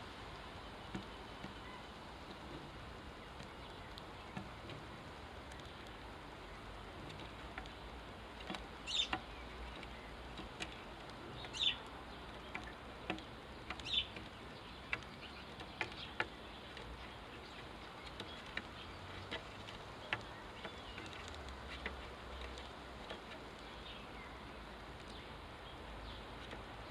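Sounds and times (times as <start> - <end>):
sparrows chirping: 0.0 - 26.9
sharp ticks: 6.7 - 24.0.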